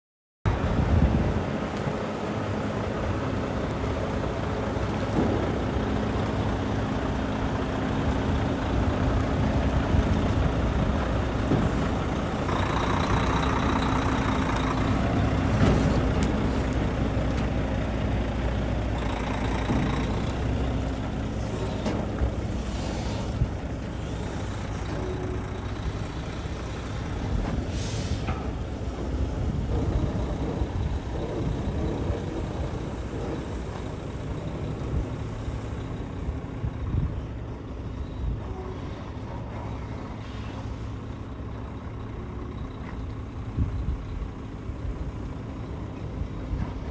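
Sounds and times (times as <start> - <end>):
heavy truck engine running: 0.5 - 46.9.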